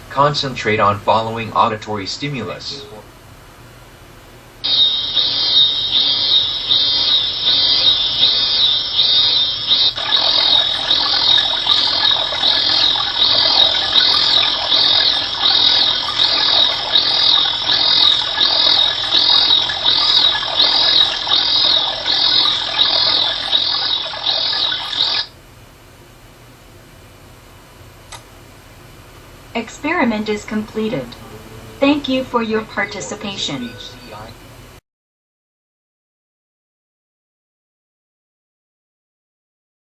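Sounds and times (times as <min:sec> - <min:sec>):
high-pitched chirps: 0:04.6 - 0:25.3, 0:30.7 - 0:34.5.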